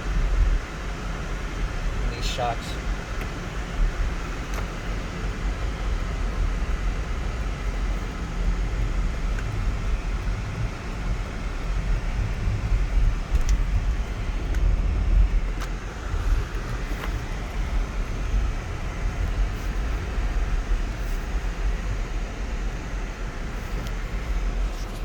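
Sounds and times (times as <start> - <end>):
car cabin road and engine rumble: 0.0 - 25.0
faint clicks: 4.4 - 15.8.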